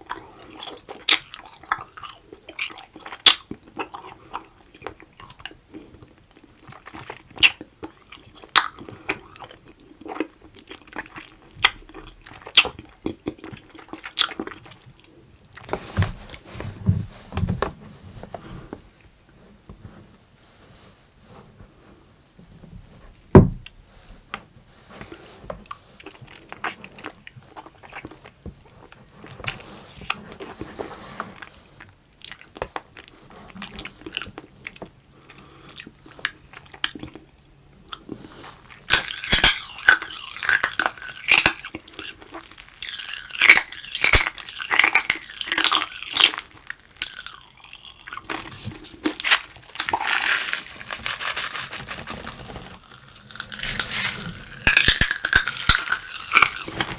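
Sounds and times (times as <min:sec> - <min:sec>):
crunching and chewing: 0:00.0 - 0:16.6, 0:25.0 - 0:56.9
low thump: 0:23.3 - 0:23.7.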